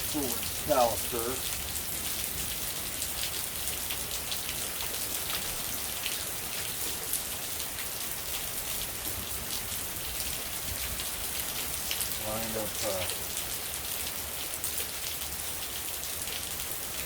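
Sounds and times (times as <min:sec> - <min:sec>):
heavy rain hissing: 0:00.0 - 0:07.8, 0:08.4 - 0:13.3.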